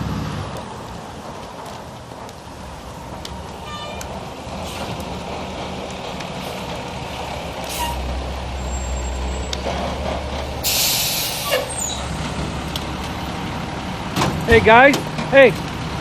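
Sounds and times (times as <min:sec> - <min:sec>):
heavy truck engine rumbling: 0:00.0 - 0:16.0
air brakes hissing: 0:04.6 - 0:05.0, 0:07.6 - 0:09.5, 0:10.6 - 0:12.1.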